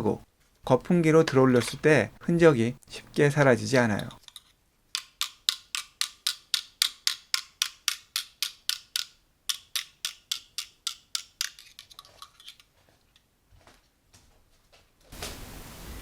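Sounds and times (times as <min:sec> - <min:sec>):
kitchen utensil tapping: 0:05.0 - 0:12.5.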